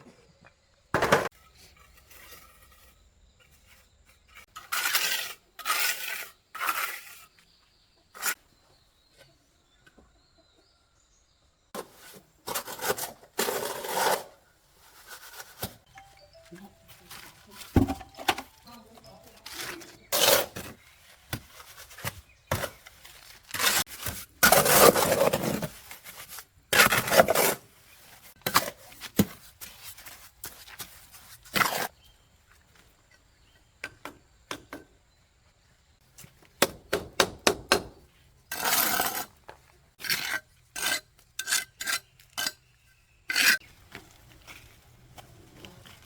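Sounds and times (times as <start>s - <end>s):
scraping and rubbing strokes: 11.8s - 15.9s.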